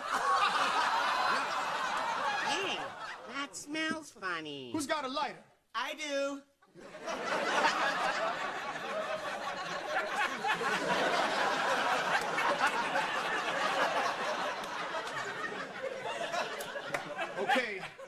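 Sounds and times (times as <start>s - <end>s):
crowd laughing: 0.0s - 3.3s, 6.7s - 18.0s.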